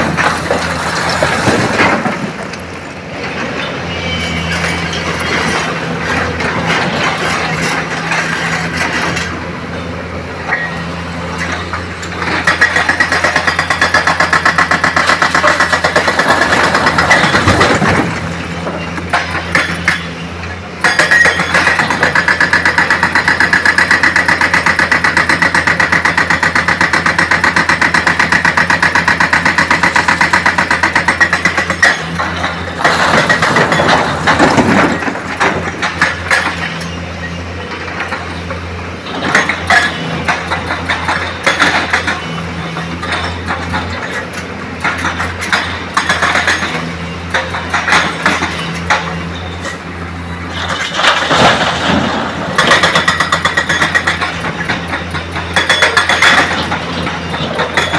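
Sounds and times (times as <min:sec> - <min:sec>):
knocks and clatter: 0:20.8 - 0:37.0, 0:37.8 - 0:49.8, 0:50.6 - 0:57.9.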